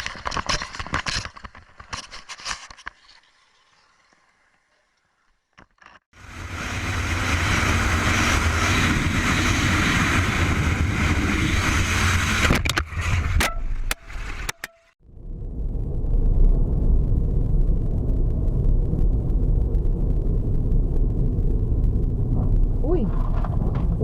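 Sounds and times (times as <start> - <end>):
car engine and road noise: 6.1 - 15.6.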